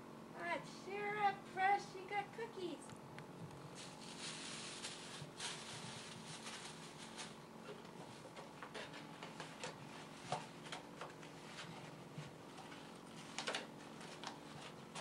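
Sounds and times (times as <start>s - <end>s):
faint steady hum: 0.0s - 15.0s
paper rustling: 3.7s - 15.0s.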